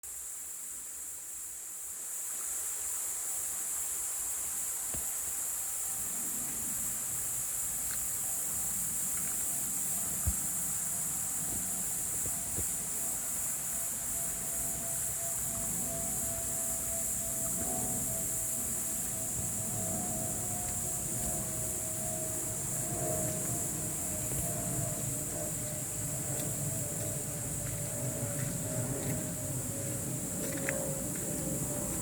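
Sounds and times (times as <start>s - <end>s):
insects singing: 7.2s - 32.0s
low rumbling noise: 14.8s - 32.0s.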